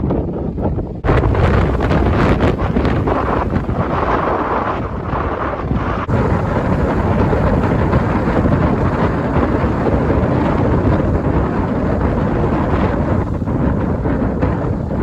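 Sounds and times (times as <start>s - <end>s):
gusty wind on microphone: 0.0s - 15.0s.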